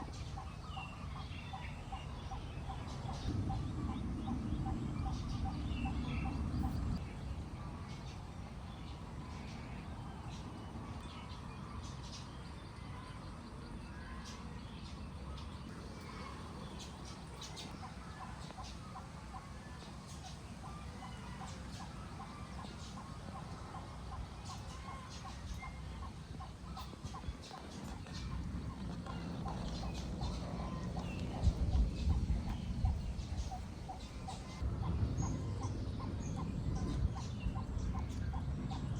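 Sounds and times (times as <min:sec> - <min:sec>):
chickens clucking: 0:00.0 - 0:07.0, 0:15.8 - 0:38.9
low rushing noise: 0:00.0 - 0:10.9, 0:15.7 - 0:38.9
small birds chirping: 0:00.0 - 0:38.9
steady low rumble: 0:00.0 - 0:38.9.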